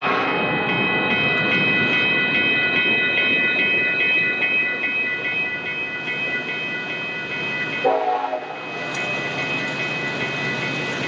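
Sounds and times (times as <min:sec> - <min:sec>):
high ringing tone: 0:00.0 - 0:11.0
freight train wheels clicking: 0:03.6 - 0:11.0.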